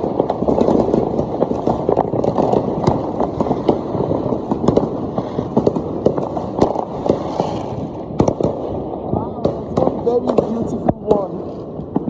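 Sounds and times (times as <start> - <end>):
distant explosions: 0.0 - 12.0
fireworks bangs and pops: 0.0 - 12.0
sharp firework cracks: 0.0 - 12.0.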